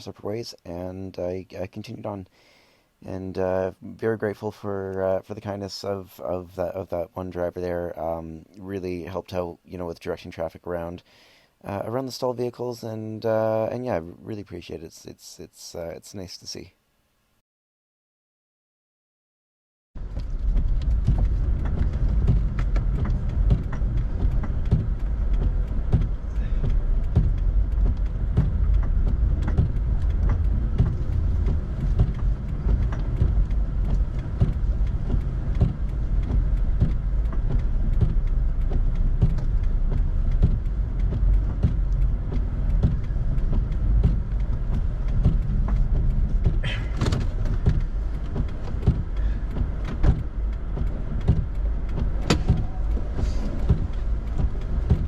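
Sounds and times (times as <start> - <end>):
low road rumble: 20.0 - 55.0
small knocks and clicks: 20.0 - 55.0.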